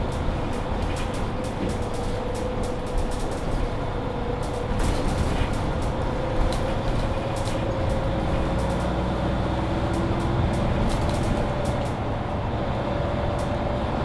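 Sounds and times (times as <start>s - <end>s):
interior rattles and clicks: 0.0s - 9.0s, 9.9s - 12.0s
bus drivetrain rumble and whine: 0.0s - 14.0s.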